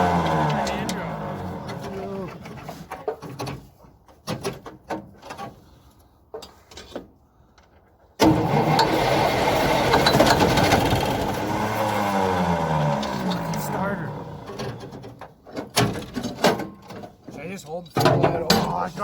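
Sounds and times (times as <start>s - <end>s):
truck engine cranking: 0.0s - 3.7s, 8.2s - 17.2s.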